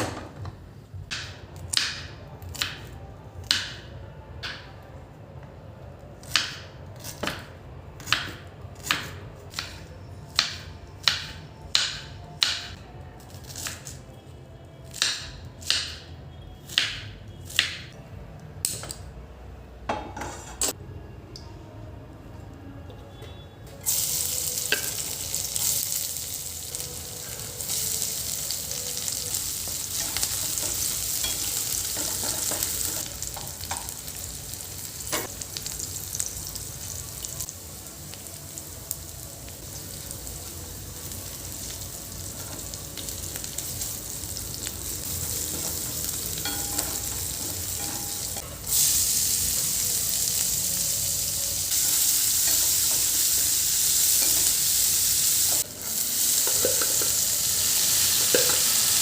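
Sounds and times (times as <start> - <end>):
food sizzling in hot oil: 23.8 - 59.0.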